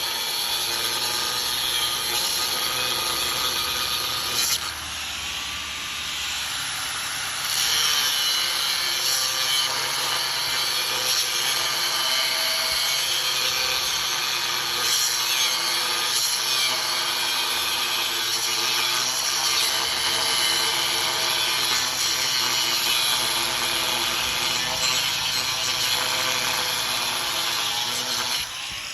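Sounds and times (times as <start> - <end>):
power tools grinding steel: 0.0 - 28.9.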